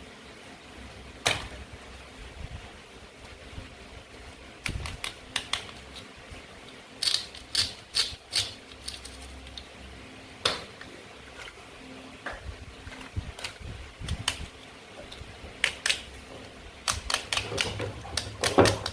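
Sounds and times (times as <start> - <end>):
toy knife clicking and tapping: 7.0 - 9.0.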